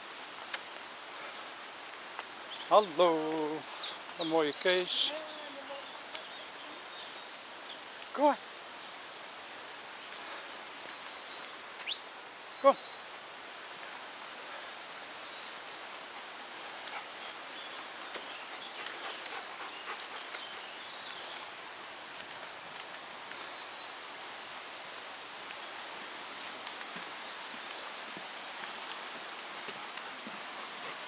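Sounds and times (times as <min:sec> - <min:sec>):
stormy weather hiss: 0:00.0 - 0:31.0.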